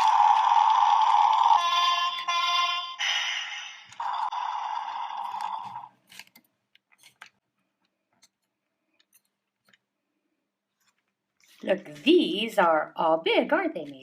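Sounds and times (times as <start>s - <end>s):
plastic toy vehicles clicking: 0.0s - 2.9s.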